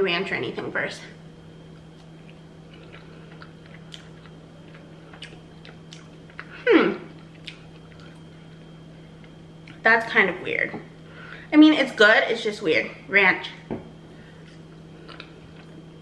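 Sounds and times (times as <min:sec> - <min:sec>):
person chewing soft food: 0:01.7 - 0:09.8, 0:14.2 - 0:16.0
person humming mm: 0:06.6 - 0:07.1.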